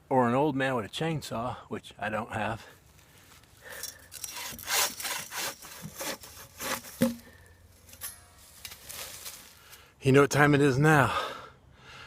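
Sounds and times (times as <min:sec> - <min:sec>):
hand saw cutting wood: 0:04.1 - 0:07.3
sharp knock: 0:07.0 - 0:07.3.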